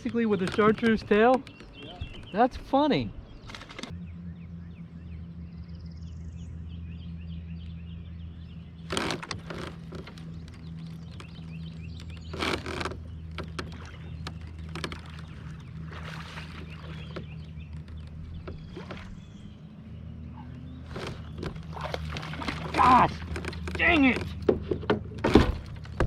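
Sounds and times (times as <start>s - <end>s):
birds chirping faintly: 0.0s - 26.0s
low motor hum: 0.0s - 26.0s.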